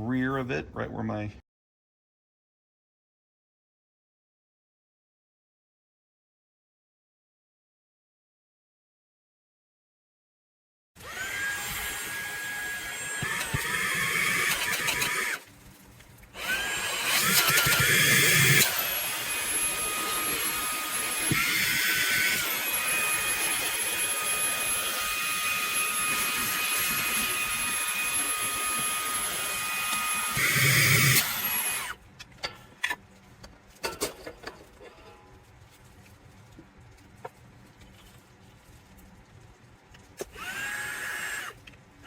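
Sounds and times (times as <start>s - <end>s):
vacuum motor whine: 11.0s - 15.4s, 16.4s - 32.0s, 40.2s - 41.6s.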